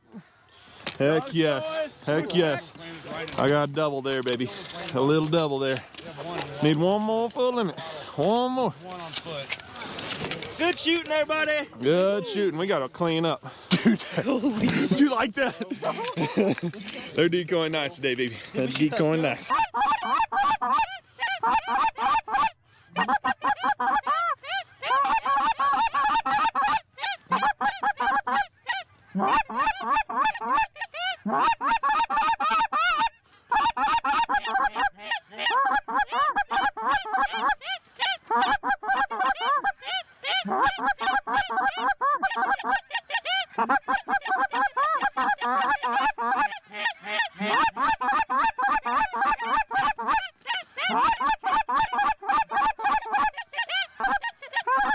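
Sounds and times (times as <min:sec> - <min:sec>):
geese honking: 0:18.6 - 0:54.9.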